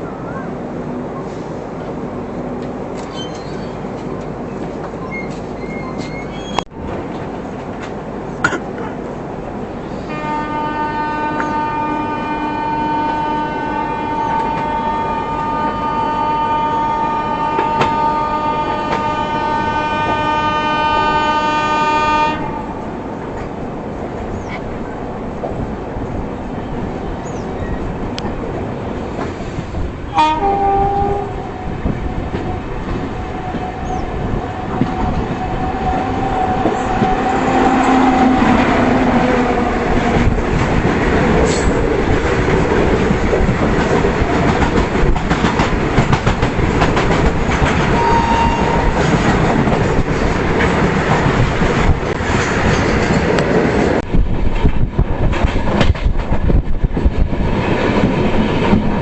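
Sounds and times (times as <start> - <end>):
train rumbling: 0.0 - 59.0
rail clatter: 1.2 - 9.2, 17.0 - 21.6, 22.5 - 59.0
train horn: 10.0 - 22.8, 30.1 - 39.7, 47.9 - 49.3.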